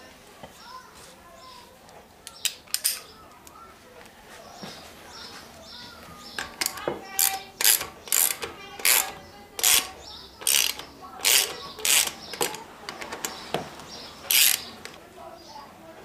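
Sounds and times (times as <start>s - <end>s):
ratchet wrench clicking: 6.4s - 13.2s, 14.3s - 15.0s.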